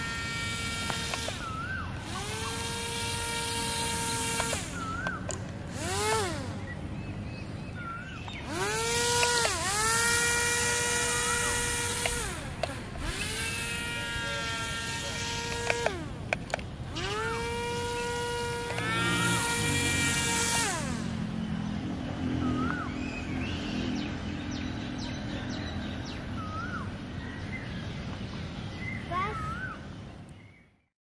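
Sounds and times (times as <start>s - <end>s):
small electric motors whining: 0.0s - 23.3s
sharp clicks: 0.8s - 1.5s, 4.2s - 5.6s, 8.2s - 9.8s, 11.9s - 13.4s, 15.4s - 17.2s, 18.6s - 20.1s.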